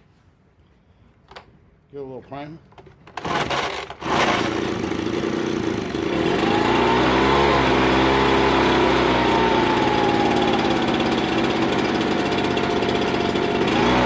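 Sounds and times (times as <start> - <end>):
leaf blower engine running: 3.2 - 14.0.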